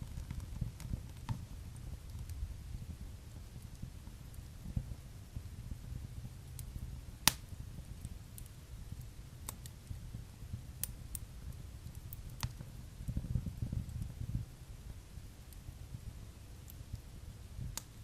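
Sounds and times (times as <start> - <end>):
fire crackling and popping: 0.0 - 18.0
fire flames rumbling: 0.0 - 18.0.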